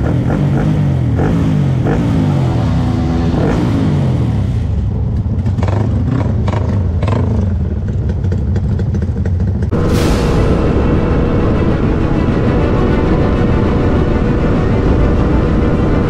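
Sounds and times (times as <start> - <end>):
motorcycle engines revving and idling: 0.0 - 10.0, 10.6 - 16.0.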